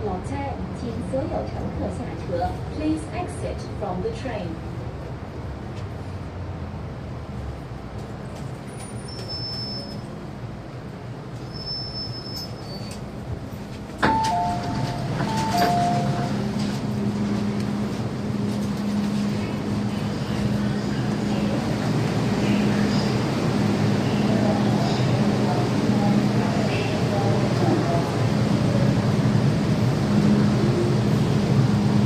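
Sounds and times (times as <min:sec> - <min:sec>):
low train hum: 0:00.0 - 0:32.0
train noise: 0:00.0 - 0:32.0
two-tone door chime: 0:14.0 - 0:16.4.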